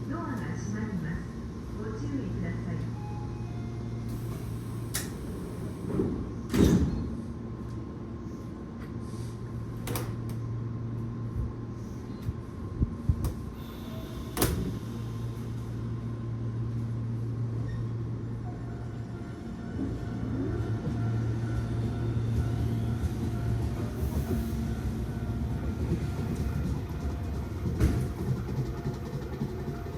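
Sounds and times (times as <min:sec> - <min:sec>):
electric train humming: 0:00.0 - 0:06.5, 0:12.5 - 0:29.9.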